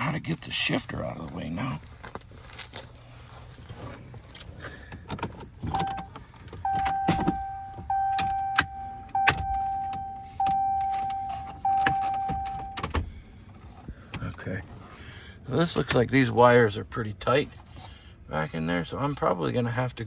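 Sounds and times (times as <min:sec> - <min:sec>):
dashboard warning chime: 0:05.7 - 0:13.2.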